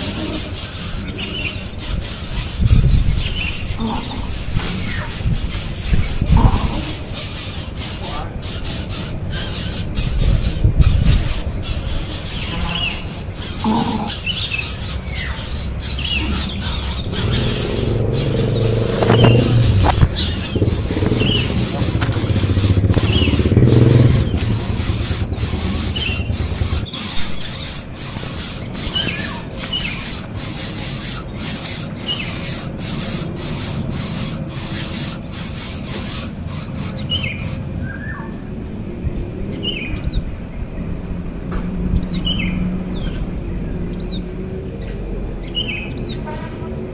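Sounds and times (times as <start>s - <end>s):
small birds chirping: 0.0s - 46.9s
steady insect buzz: 0.0s - 46.9s
low motor rumble: 15.0s - 28.7s.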